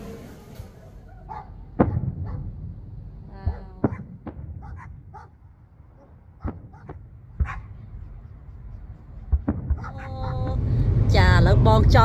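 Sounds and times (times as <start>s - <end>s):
fireworks bangs: 0.0s - 11.3s
low rumble: 0.0s - 12.0s.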